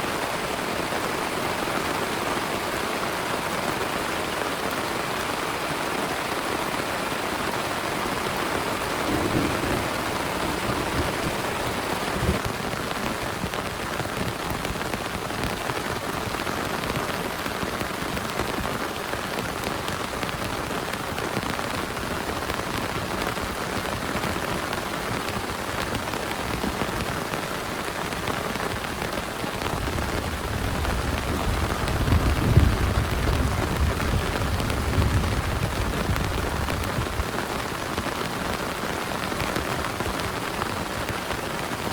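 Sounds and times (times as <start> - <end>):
heavy steady rain: 0.0 - 41.9
thunder rumbling: 8.1 - 12.5, 29.7 - 37.4.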